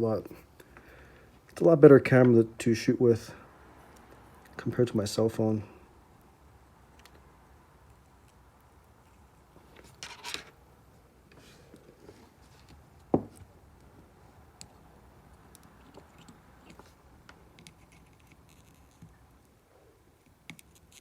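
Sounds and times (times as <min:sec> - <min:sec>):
small clicks and scrapes: 0:07.9 - 0:10.6, 0:15.4 - 0:19.5, 0:20.2 - 0:21.0
scraping rustle: 0:09.6 - 0:10.6.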